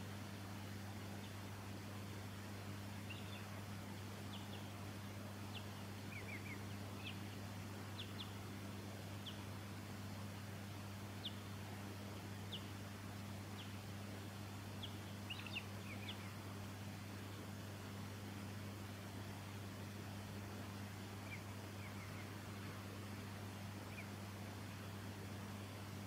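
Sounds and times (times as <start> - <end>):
steady low hum: 0.0 - 26.0
birds giving thin high calls: 14.7 - 16.4, 21.2 - 22.8.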